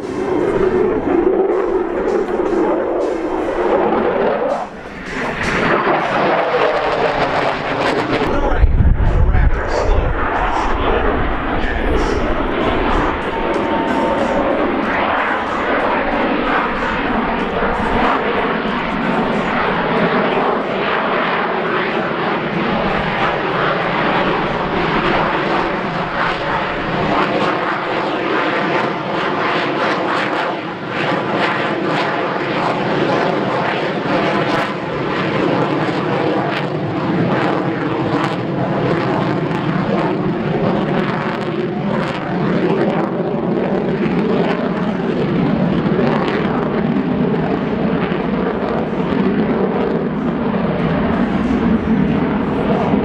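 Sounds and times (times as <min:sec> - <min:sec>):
jet engine crackles: 0:00.0 - 0:20.6, 0:22.4 - 0:27.1, 0:46.7 - 0:53.0
loud jet roar: 0:00.0 - 0:27.9, 0:44.1 - 0:53.0.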